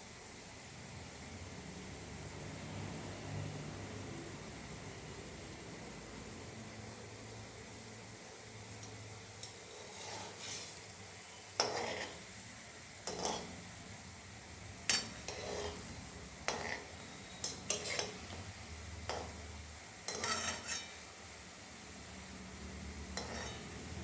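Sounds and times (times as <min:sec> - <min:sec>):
faint oil sizzle: 0:00.0 - 0:24.0
metal utensil scraping a pan: 0:09.4 - 0:10.9, 0:11.5 - 0:12.3, 0:13.0 - 0:13.6, 0:14.9 - 0:18.4, 0:19.1 - 0:19.4, 0:20.0 - 0:21.1, 0:23.1 - 0:23.8.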